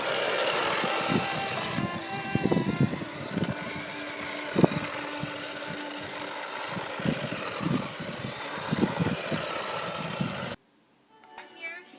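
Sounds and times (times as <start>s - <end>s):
electric motors humming: 0.0s - 10.6s.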